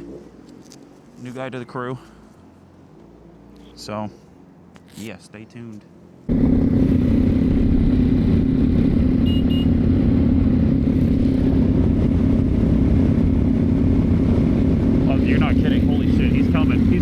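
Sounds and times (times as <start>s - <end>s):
motorcycle engine running: 6.3s - 17.0s.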